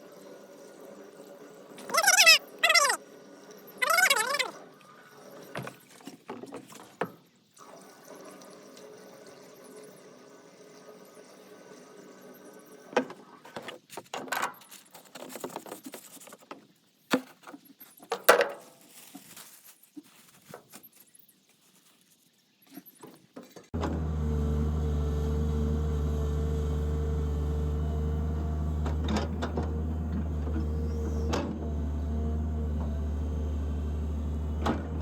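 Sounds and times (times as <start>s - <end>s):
excavator diesel engine running: 23.8s - 35.0s.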